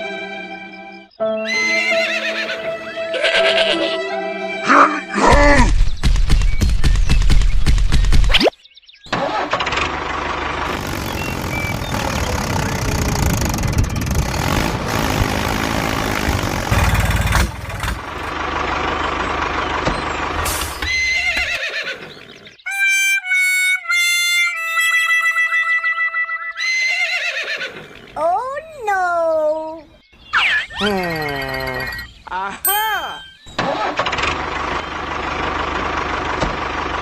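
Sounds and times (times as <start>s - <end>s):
tractor engine rattling rumble: 9.1s - 22.6s, 33.4s - 37.0s
electronic tones jingle: 30.4s - 33.5s.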